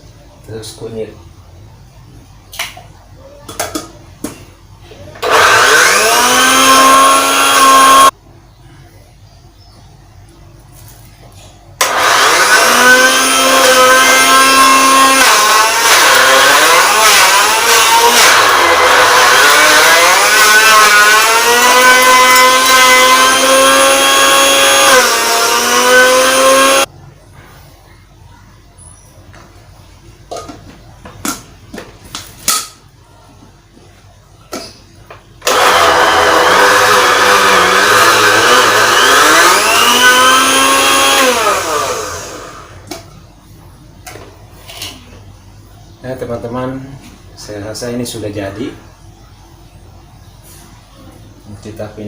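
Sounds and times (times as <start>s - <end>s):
electric blender whining: 5.2s - 8.1s, 11.8s - 26.9s, 35.4s - 42.9s.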